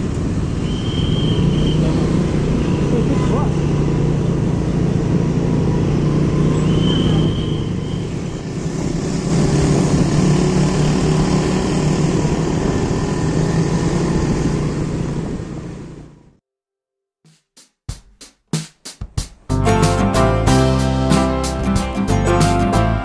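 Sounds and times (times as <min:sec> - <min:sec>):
road and traffic noise: 0:00.0 - 0:16.4
vehicle engine hum: 0:00.0 - 0:16.4.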